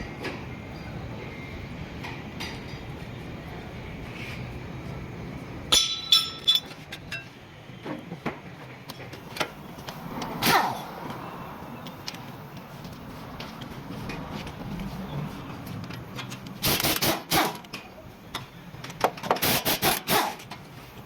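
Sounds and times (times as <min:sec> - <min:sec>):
workshop hum: 0:00.0 - 0:21.0
metal tools clinking: 0:05.7 - 0:07.3.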